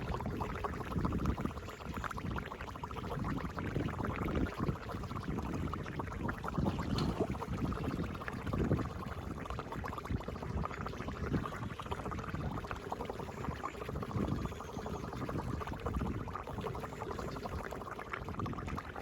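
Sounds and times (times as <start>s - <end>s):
floodwater gurgling down drain: 0.0s - 19.0s.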